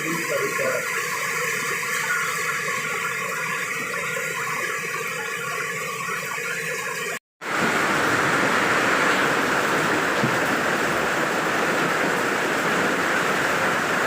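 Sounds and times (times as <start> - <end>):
heavy rain falling: 7.4 - 14.0.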